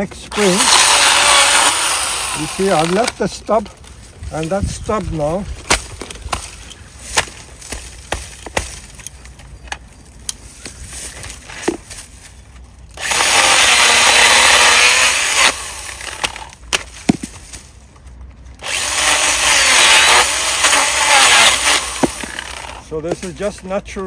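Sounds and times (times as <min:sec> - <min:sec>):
cordless chainsaw cutting wood: 0:00.2 - 0:03.2, 0:13.0 - 0:16.6, 0:18.6 - 0:22.9
twigs snapping: 0:05.0 - 0:13.1.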